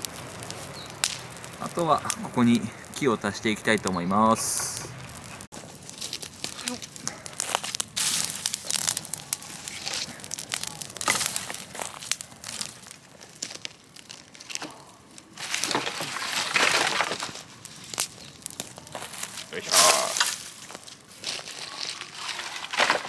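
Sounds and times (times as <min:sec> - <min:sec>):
bonfire crackles: 0:00.0 - 0:23.0
dry brush rustling and snapping: 0:00.0 - 0:23.0.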